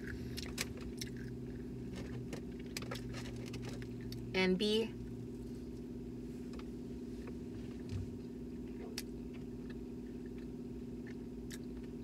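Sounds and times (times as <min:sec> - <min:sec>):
person chewing fried food: 0:00.0 - 0:04.3, 0:08.7 - 0:12.0
car cabin hum: 0:01.5 - 0:12.0.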